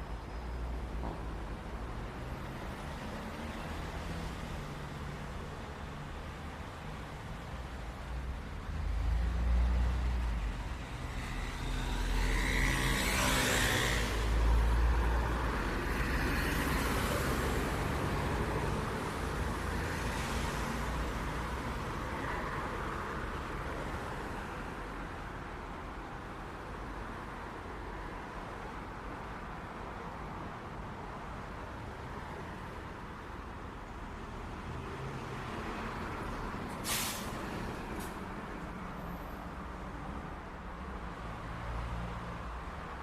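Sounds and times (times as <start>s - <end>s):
cars passing: 8.5s - 25.0s.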